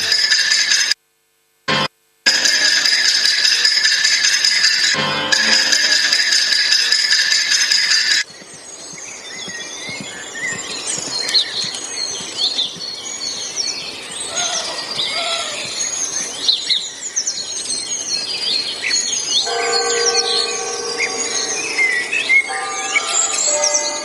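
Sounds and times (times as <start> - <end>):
many birds chirping: 5.6 - 24.0
held horn-like tone: 19.4 - 24.0.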